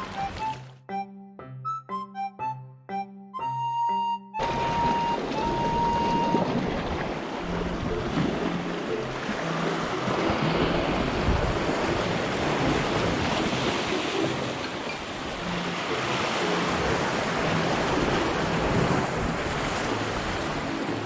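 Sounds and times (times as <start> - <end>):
waves washing against rocks: 9.2 - 21.0
wind buffeting microphone: 10.5 - 16.1.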